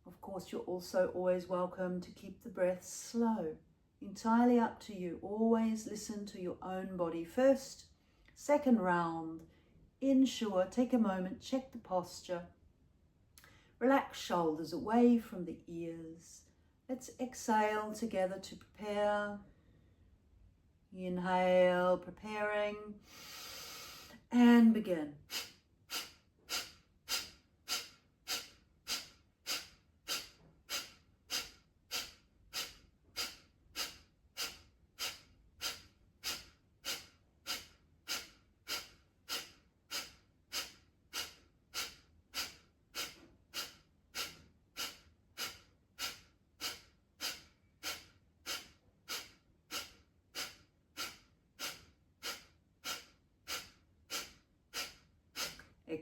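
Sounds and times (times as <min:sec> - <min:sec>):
quiet inhale: 0:13.4 - 0:13.8, 0:19.5 - 0:20.2, 0:23.0 - 0:24.3, 0:25.3 - 0:55.8
woman forcefully exhaling through nose: 0:23.1 - 0:24.1, 0:25.3 - 0:55.6.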